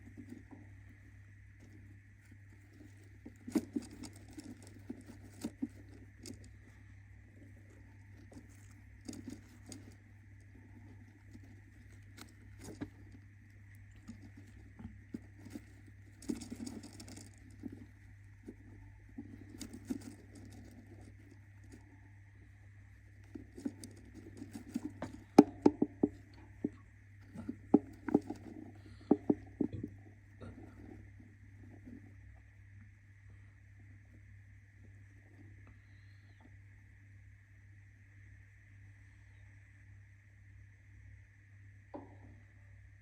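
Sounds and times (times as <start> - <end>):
bird scratching and shuffling: 0.0 - 32.9
low electrical hum: 0.0 - 43.0.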